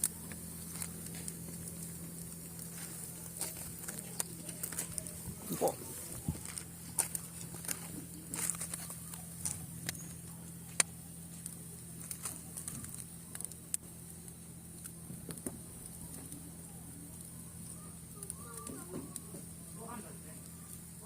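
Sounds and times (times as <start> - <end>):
bonfire crackling and popping: 0.0 - 21.0
steady low hum: 0.0 - 21.0.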